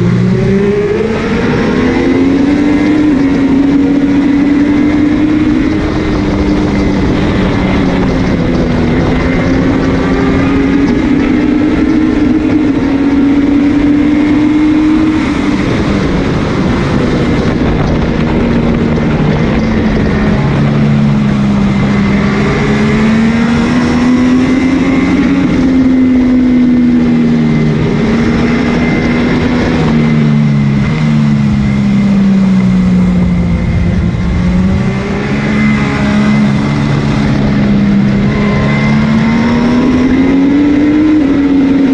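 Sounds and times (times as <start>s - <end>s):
motorcycle engine racing: 0.0s - 41.9s
wind rush on microphone: 0.0s - 41.9s.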